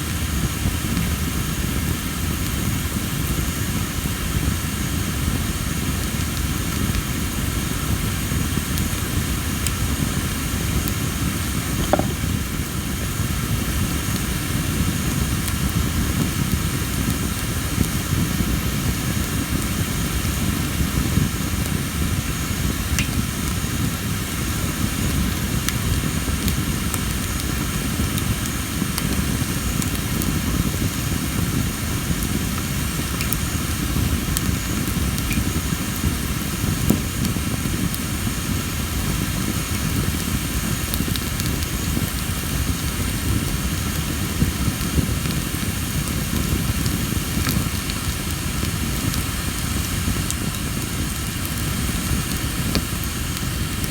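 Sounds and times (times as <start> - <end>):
campfire flames rumbling: 0.0 - 53.9
wood crackling pops: 11.8 - 12.7, 23.0 - 23.3, 33.0 - 33.5.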